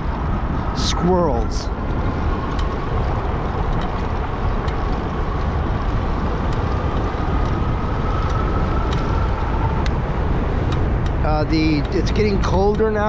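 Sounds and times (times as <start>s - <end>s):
wind rumble on microphone: 0.0s - 13.0s
light ticks: 2.4s - 10.0s, 10.7s - 13.0s.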